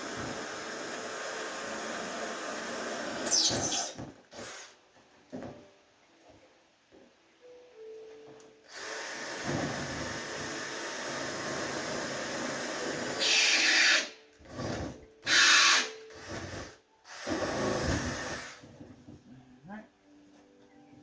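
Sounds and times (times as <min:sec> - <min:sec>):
power drill boring holes: 0:00.0 - 0:04.7, 0:08.7 - 0:18.6.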